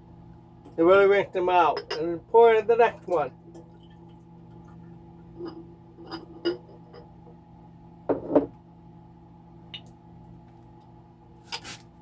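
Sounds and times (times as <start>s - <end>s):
steady low hum: 0.0s - 12.0s
glass jars clinking on glass: 5.4s - 7.1s.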